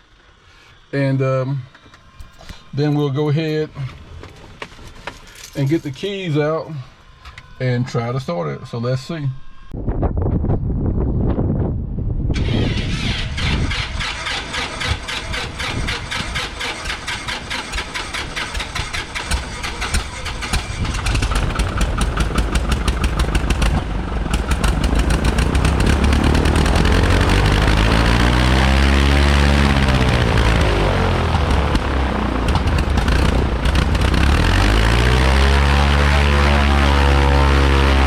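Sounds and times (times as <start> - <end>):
aircraft engine starting: 12.3 - 38.0.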